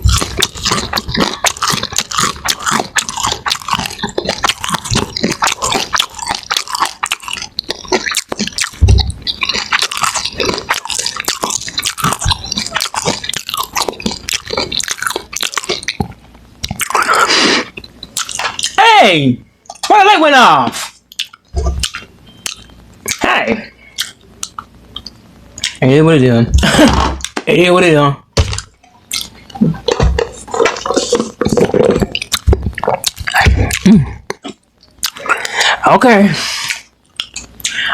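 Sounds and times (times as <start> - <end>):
chewing and crunching food: 0.0 - 18.8, 20.8 - 23.2, 23.8 - 25.8, 28.4 - 35.8, 36.5 - 37.9
moist mouth sounds: 0.0 - 18.8, 28.6 - 35.8.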